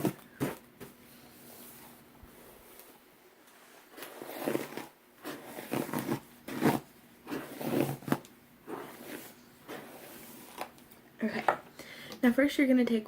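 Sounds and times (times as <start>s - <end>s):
hairbrush swishing through hair: 1.4s - 10.7s.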